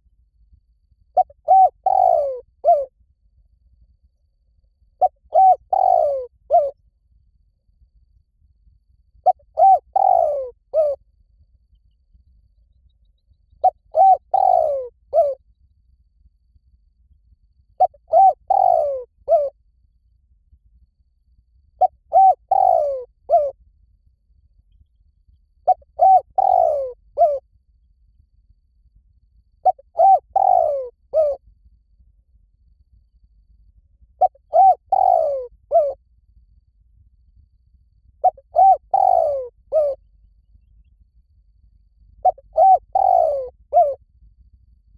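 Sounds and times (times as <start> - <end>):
dove cooing: 1.2 - 2.9, 5.0 - 6.8, 9.2 - 11.0, 13.6 - 15.4, 17.8 - 19.5, 21.8 - 23.6, 25.6 - 27.4, 29.6 - 31.4, 34.2 - 36.0, 38.2 - 40.0, 42.2 - 44.0.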